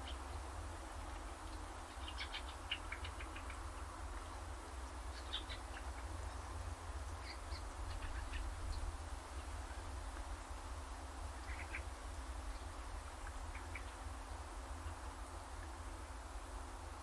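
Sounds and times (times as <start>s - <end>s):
small birds chirping: 0.0s - 10.6s, 11.3s - 15.8s
soft hiss: 0.0s - 17.0s.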